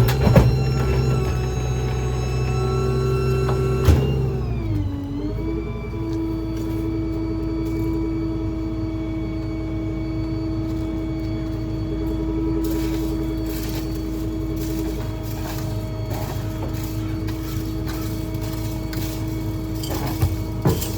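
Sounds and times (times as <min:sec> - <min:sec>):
garbage truck engine running: 0:00.0 - 0:20.9
clattering: 0:13.0 - 0:20.9.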